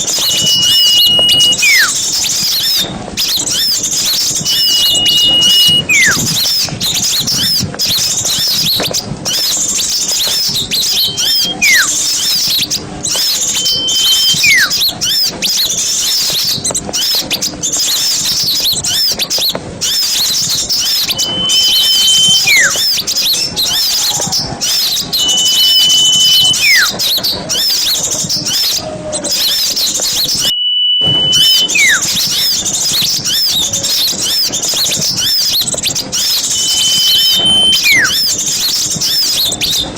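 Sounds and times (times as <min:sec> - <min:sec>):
clear whistle dropping in pitch: 0:00.0 - 0:02.0, 0:04.4 - 0:06.3, 0:10.8 - 0:12.0, 0:13.2 - 0:14.8, 0:20.8 - 0:22.9, 0:25.2 - 0:27.0, 0:30.3 - 0:32.6, 0:36.2 - 0:38.3
songbirds chirping and twittering: 0:00.0 - 0:39.9.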